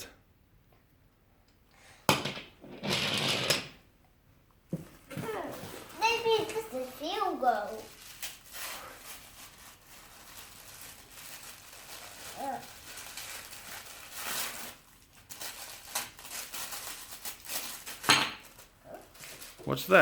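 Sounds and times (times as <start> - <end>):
packing paper crinkling: 5.4 - 20.0.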